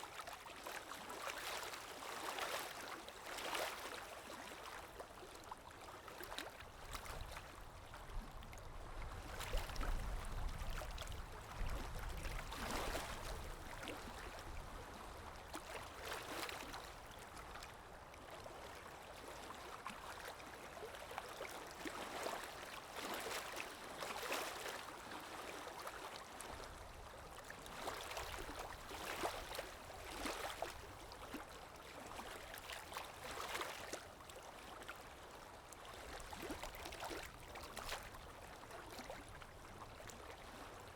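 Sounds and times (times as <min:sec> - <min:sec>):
river water lapping: 0:00.0 - 0:40.9.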